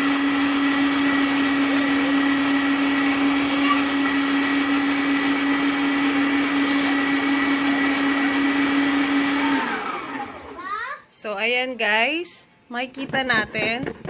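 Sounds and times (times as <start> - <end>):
electric meat grinder running: 0.0 - 10.7
motor spinning down: 0.6 - 10.6.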